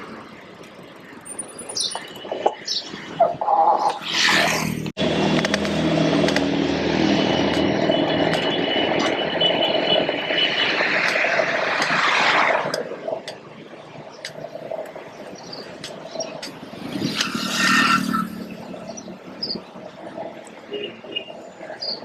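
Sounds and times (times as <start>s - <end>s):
road noise: 0.0s - 22.0s
motor vehicle running close by: 3.8s - 12.8s, 16.5s - 20.4s.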